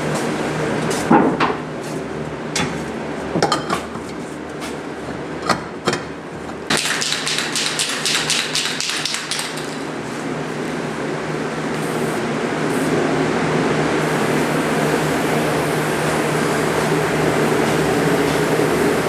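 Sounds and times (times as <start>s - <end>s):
hard objects knocking: 5.4s - 9.9s
rapid clicking and rattling: 6.7s - 10.0s
steady low hum: 9.5s - 19.0s.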